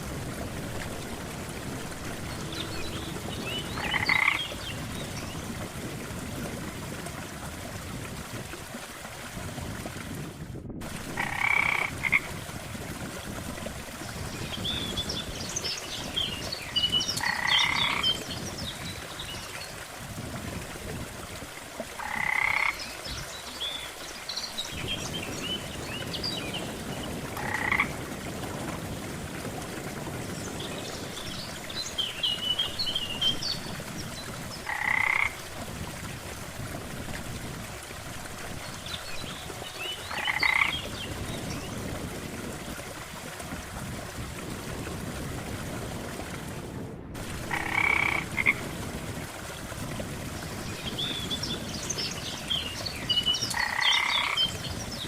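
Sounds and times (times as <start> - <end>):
water noise: 0.0 - 55.0
frog croaking: 3.8 - 4.5, 11.2 - 12.3, 17.2 - 18.1, 22.0 - 22.8, 27.4 - 28.0, 34.6 - 35.4, 40.1 - 40.7, 47.5 - 48.6, 53.5 - 54.4.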